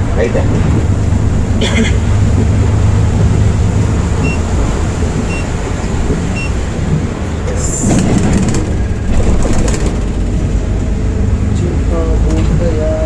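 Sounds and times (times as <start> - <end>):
bus engine and road noise: 0.0 - 13.0
short high electronic beeps: 4.2 - 4.4.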